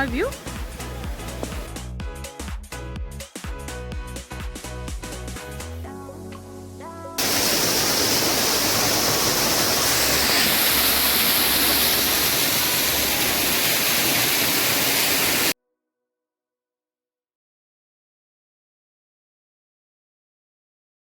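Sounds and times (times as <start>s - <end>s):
waterfall rushing: 0.0s - 1.7s, 7.2s - 15.6s
background music: 0.0s - 14.2s.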